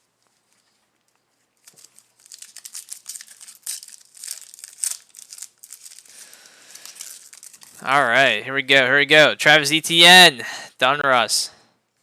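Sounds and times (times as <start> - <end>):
plastic wrapper crinkling and tearing: 0.3 - 7.9.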